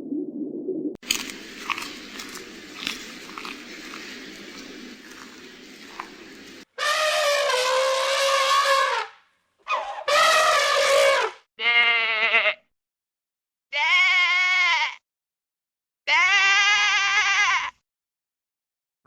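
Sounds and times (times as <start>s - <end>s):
animal bleating: 11.6s - 12.7s, 13.7s - 15.0s, 16.1s - 17.8s.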